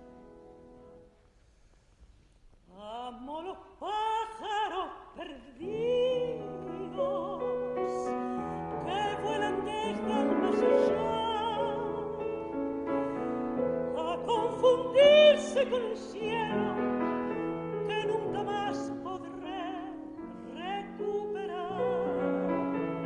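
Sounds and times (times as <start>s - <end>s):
woman singing classical with vibrato: 2.7s - 23.0s
piano chords: 5.6s - 23.0s.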